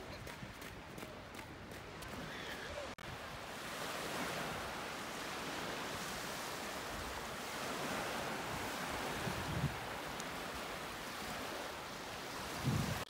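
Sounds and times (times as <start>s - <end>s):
wind on microphone: 0.0s - 13.0s
surf breaking on beach: 2.0s - 13.0s.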